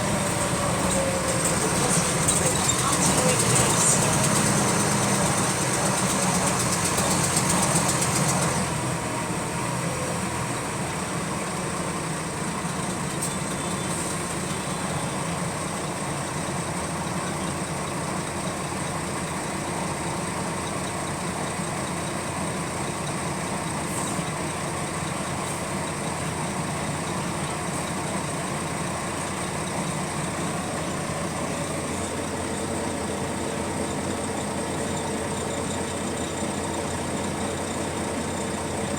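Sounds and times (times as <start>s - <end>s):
fast repetitive engine clicking: 0.0s - 9.3s
bus diesel engine running: 0.0s - 38.9s.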